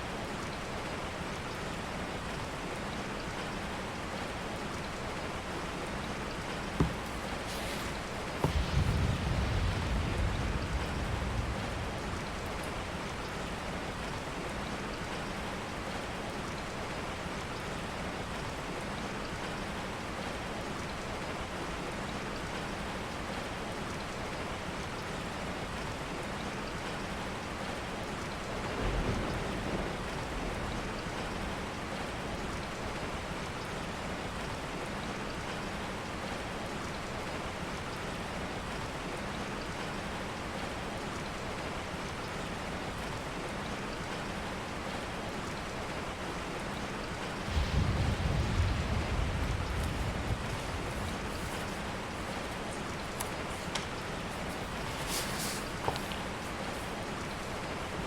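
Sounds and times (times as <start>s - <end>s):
steady rain falling: 0.0s - 58.0s
low rumble: 47.5s - 53.2s.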